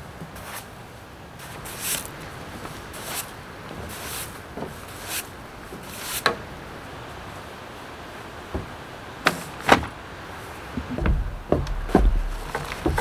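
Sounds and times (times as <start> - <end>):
broom sweeping wet deck boards: 0.0 - 13.0
sharp knocks and thumps: 8.5 - 10.0, 10.7 - 13.0.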